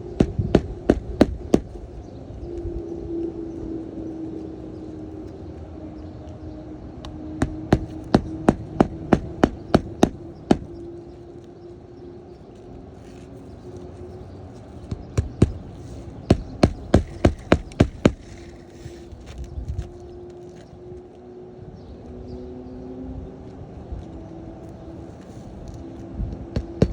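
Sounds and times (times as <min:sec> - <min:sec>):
hammer striking roofing nails: 0:00.1 - 0:01.8, 0:07.4 - 0:10.8, 0:14.9 - 0:18.7, 0:26.6 - 0:26.9.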